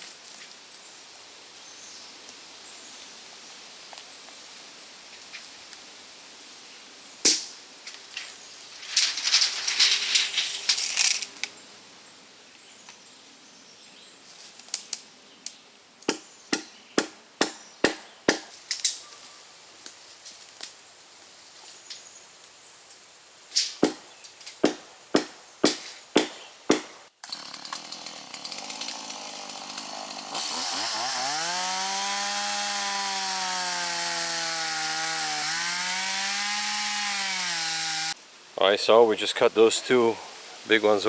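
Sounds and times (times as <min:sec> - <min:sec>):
crackling brush: 0:07.8 - 0:11.6
sharp wooden knocks and cracks: 0:16.0 - 0:19.0, 0:23.6 - 0:27.9.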